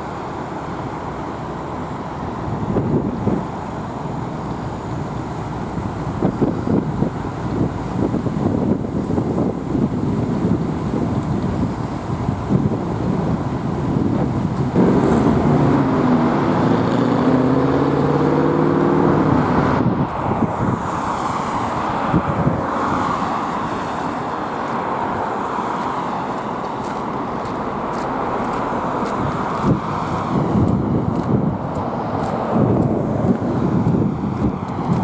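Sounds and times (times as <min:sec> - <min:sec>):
road and wind noise: 0:00.0 - 0:35.0
vehicle engine passing: 0:14.7 - 0:35.0.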